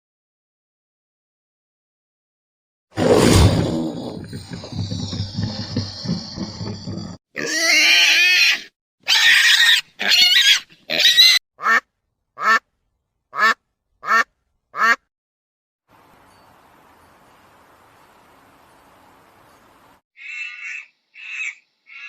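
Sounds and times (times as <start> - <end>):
low rough animal sound: 3.9 - 7.2
pitched animal calls: 20.2 - 22.0.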